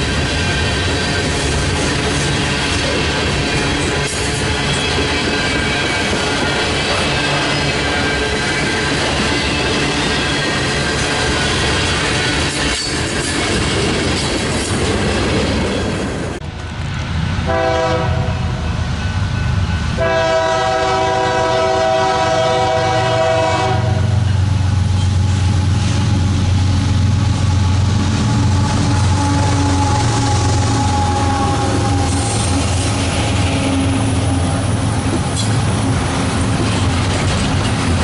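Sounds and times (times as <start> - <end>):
locomotive engine rumbling: 0.0 - 38.0
train air horn blasts: 17.4 - 18.7, 19.9 - 24.4, 28.2 - 34.8.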